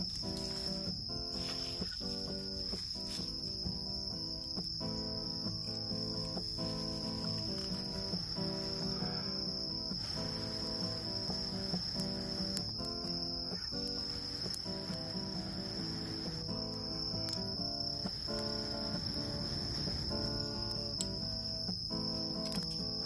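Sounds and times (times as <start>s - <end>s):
insects chirring: 0.0s - 23.0s
instrumental background music: 0.0s - 23.0s.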